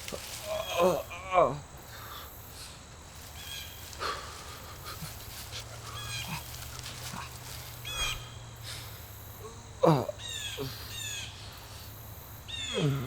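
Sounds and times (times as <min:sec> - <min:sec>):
low steady background hum: 0:00.0 - 0:13.0
high animal chirps: 0:03.4 - 0:08.4.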